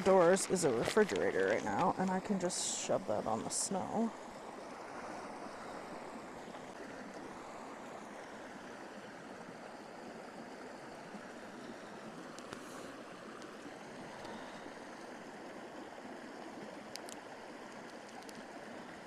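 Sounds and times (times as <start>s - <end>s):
faint clicks: 16.9s - 18.5s.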